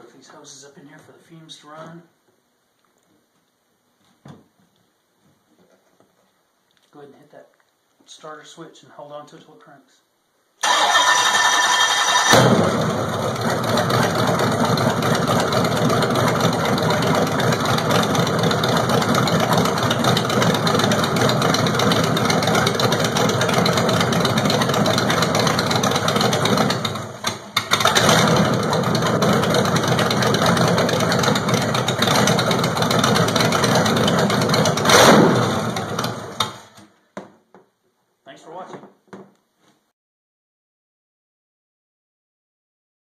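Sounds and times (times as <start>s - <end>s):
car engine running: 12.2s - 36.4s.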